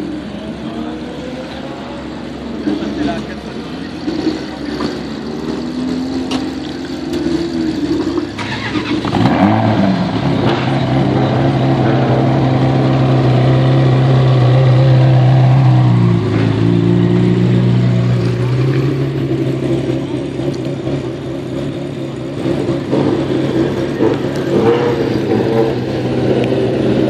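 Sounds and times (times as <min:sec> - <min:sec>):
car engines idling: 0:00.0 - 0:27.0
car engine starting up: 0:02.5 - 0:11.9.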